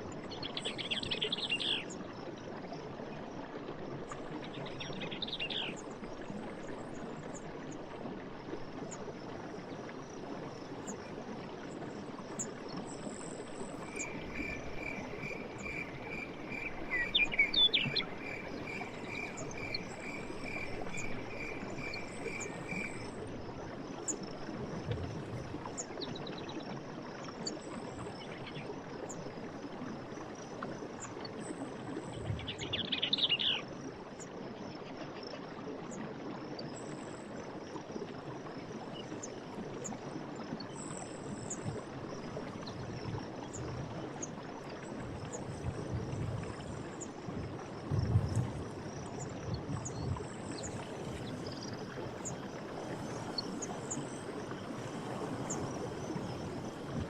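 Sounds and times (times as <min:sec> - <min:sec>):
running water rushing: 0:02.4 - 0:26.0, 0:37.2 - 0:57.0
insects chirring: 0:11.8 - 0:25.6, 0:44.8 - 0:57.0.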